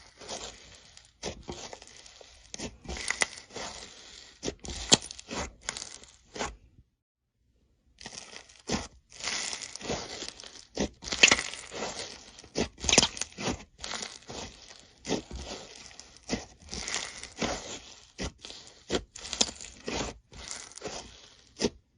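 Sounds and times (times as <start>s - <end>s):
slime squeezed with pops and crackles: 8.0s - 14.5s.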